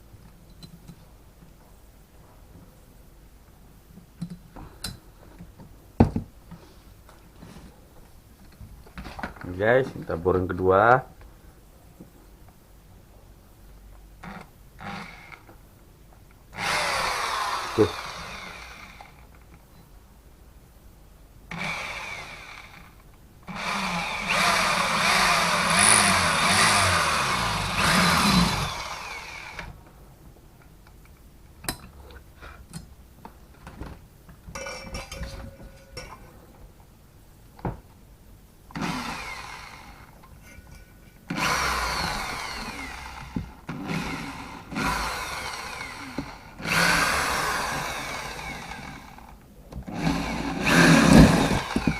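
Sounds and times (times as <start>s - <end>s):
electric drill boring through steel: 16.6s - 19.2s, 21.5s - 22.9s, 23.5s - 29.7s, 38.8s - 40.1s, 41.3s - 49.3s, 49.9s - 51.9s.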